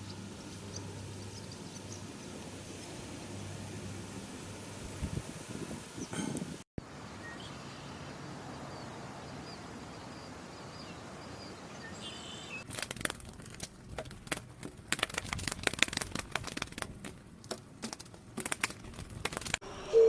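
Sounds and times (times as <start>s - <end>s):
sharp clicks and rustles: 12.6s - 19.6s.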